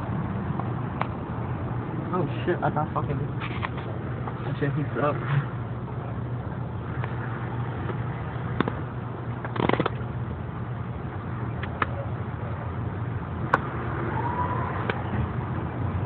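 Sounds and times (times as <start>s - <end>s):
car engine humming: 0.0s - 16.0s
sharp clicks and knocks: 9.4s - 10.0s.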